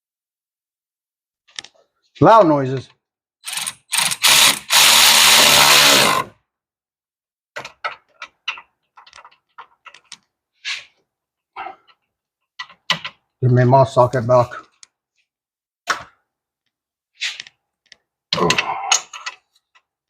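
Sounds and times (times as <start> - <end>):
impact wrench bursts: 3.4 - 6.3.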